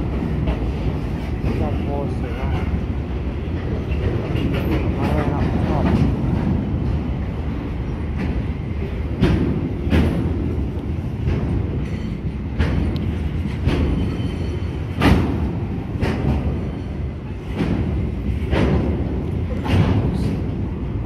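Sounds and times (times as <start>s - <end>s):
train wheels rumbling on rail: 0.0s - 21.0s
wheels clacking over rail joints: 0.0s - 21.0s.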